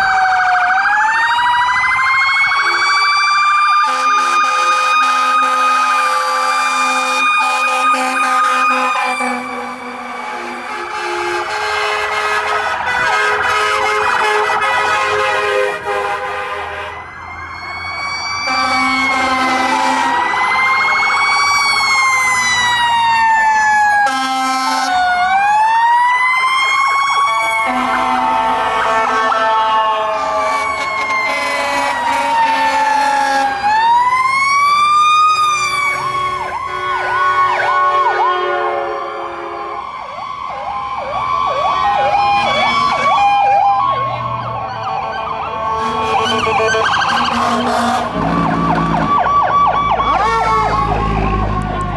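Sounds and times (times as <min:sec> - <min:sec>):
steady siren tones: 0:00.0 - 0:51.9
air horn blasts: 0:03.8 - 0:17.1, 0:18.4 - 0:20.4, 0:24.0 - 0:25.1, 0:27.6 - 0:33.8, 0:35.9 - 0:39.8, 0:45.6 - 0:49.2, 0:50.1 - 0:51.9.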